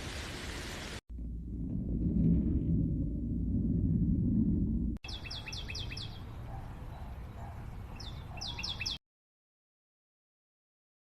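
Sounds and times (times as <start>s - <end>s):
loud low rumble: 1.1s - 5.0s
bird chirping: 5.0s - 9.0s.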